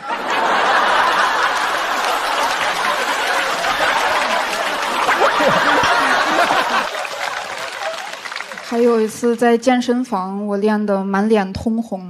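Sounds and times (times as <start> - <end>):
audience laughing: 0.0 - 8.7
audience clapping: 0.0 - 9.4.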